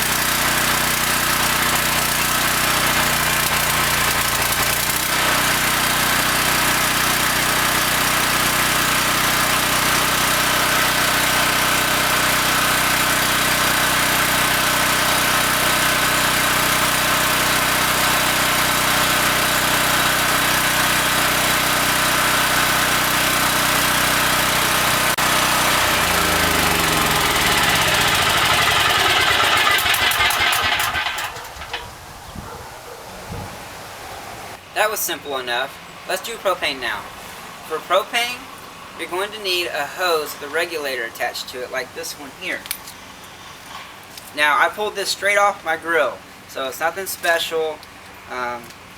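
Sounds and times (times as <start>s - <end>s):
portable generator running: 0.0s - 32.0s.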